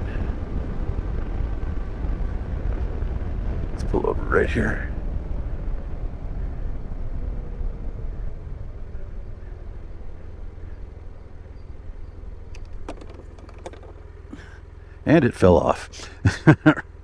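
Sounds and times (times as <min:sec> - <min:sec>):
motorcycle engine slowing to idle: 0:12.6 - 0:14.9.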